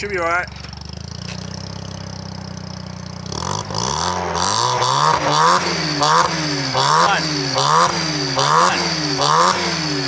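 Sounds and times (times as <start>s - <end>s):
car engine revving: 1.6s - 10.0s.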